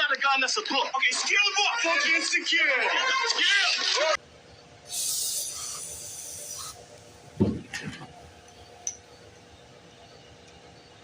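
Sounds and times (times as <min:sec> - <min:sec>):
short hiss: 0:04.9 - 0:06.9
knock with brief rattle: 0:07.4 - 0:08.1.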